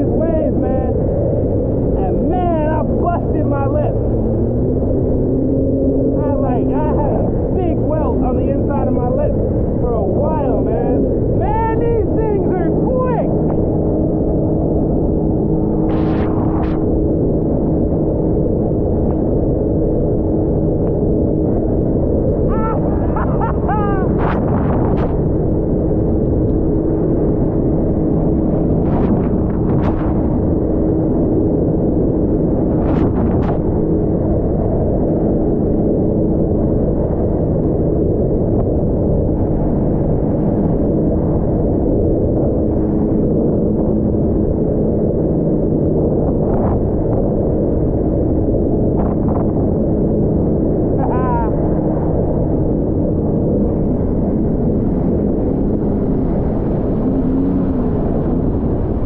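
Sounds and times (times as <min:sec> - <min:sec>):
wind noise on microphone: 0:00.0 - 0:59.0
jet ski engine rumbling: 0:01.3 - 0:11.4, 0:19.2 - 0:25.4.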